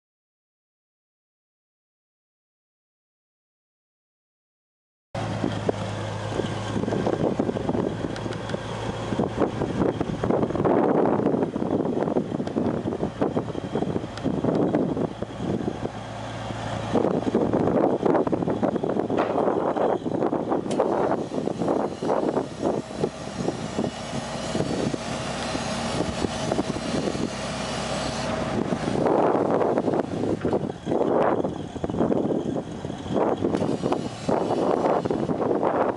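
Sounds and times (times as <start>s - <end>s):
forklift engine running: 5.2s - 35.9s
mechanical clatter: 16.9s - 35.9s
irregular engine knocks: 17.3s - 21.1s.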